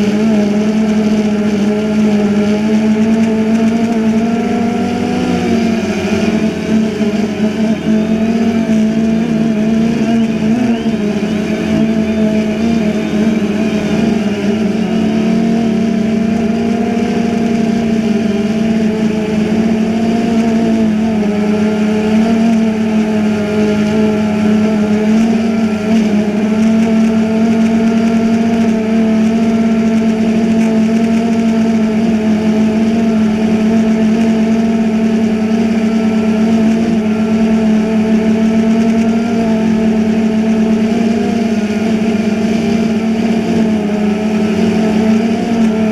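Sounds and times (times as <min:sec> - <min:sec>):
drone propellers buzzing: 0:00.0 - 0:45.9.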